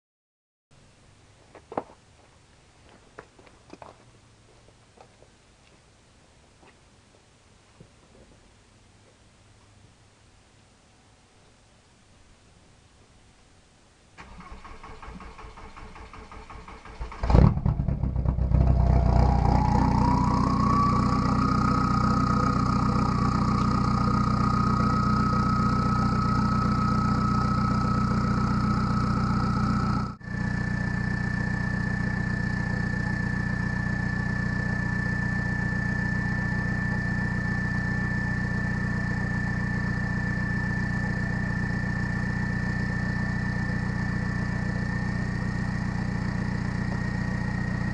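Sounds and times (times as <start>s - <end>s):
diesel engine cranking: 14.2s - 47.9s
diesel engine idling: 14.2s - 47.9s
thin whine: 17.3s - 47.9s.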